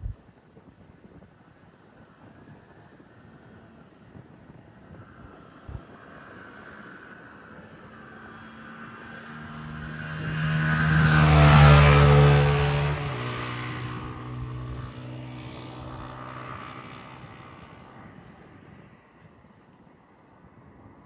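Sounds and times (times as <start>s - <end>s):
jet airliner passing by: 5.2s - 19.2s.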